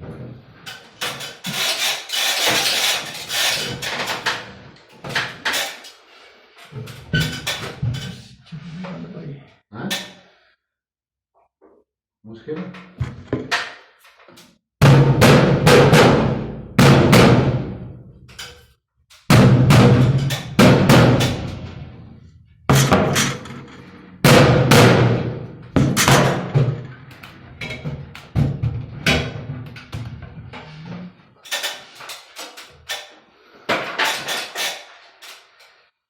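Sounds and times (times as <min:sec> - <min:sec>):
hammer striking sheet metal: 0:14.8 - 0:18.6, 0:19.2 - 0:21.8, 0:24.2 - 0:26.6.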